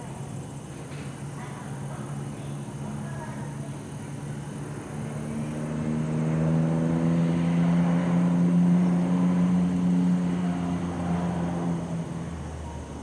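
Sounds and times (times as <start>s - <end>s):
vehicle engine passing by: 3.7s - 13.0s.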